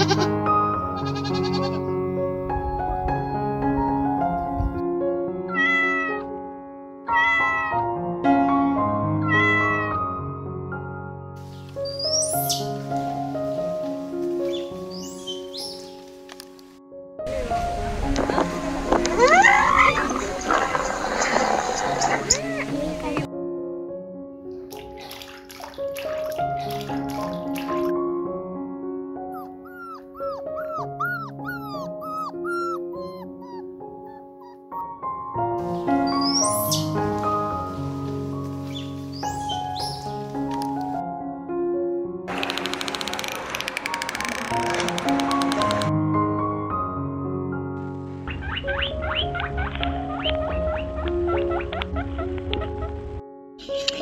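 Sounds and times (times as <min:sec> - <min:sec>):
piano music: 0:00.0 - 0:54.0
cat meowing: 0:05.5 - 0:06.3, 0:07.1 - 0:07.9, 0:09.2 - 0:10.0, 0:19.2 - 0:20.2, 0:29.4 - 0:34.7
small dog yipping: 0:29.3 - 0:34.9.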